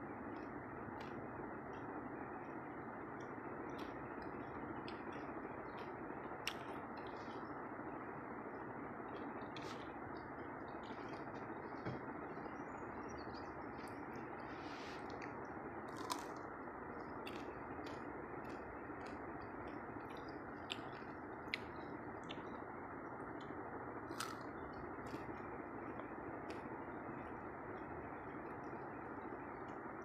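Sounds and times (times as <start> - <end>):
steady background hiss: 0.0 - 30.0
person chewing: 14.9 - 22.6, 24.1 - 25.3.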